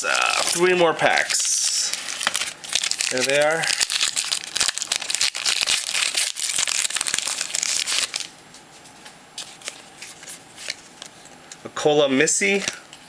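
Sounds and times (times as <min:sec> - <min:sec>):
wrapper crinkling and tearing: 0:00.0 - 0:08.3.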